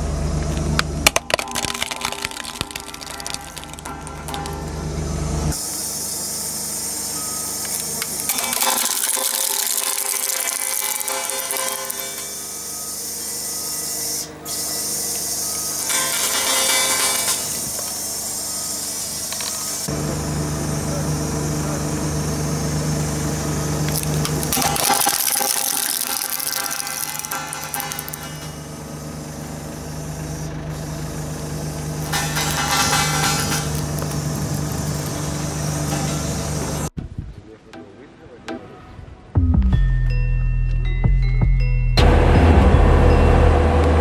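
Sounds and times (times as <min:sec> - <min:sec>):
road roller engine running: 0:00.0 - 0:37.0, 0:42.0 - 0:44.0
plastic toy cracking: 0:01.0 - 0:04.6, 0:08.2 - 0:12.2, 0:23.9 - 0:28.2.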